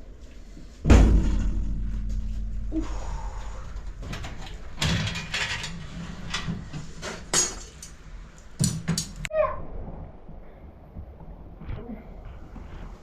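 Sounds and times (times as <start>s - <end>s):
low steady hum: 0.0s - 13.0s
knocks and clatters: 0.8s - 8.0s, 8.6s - 9.3s.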